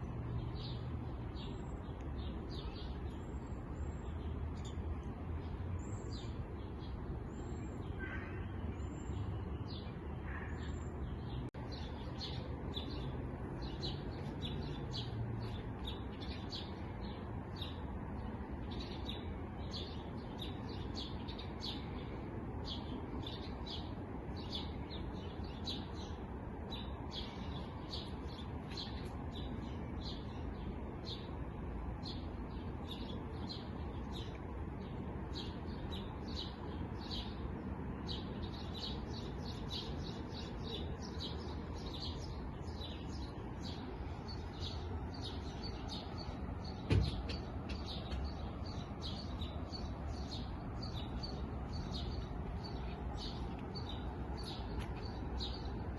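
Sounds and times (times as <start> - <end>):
small birds chirping: 0.0 - 55.9
single thump: 46.8 - 48.3.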